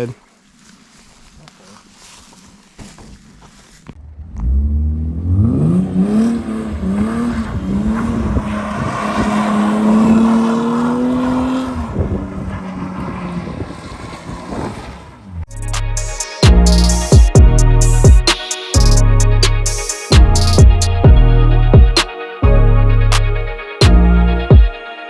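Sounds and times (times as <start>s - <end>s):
car engine accelerating hard: 4.0s - 15.5s.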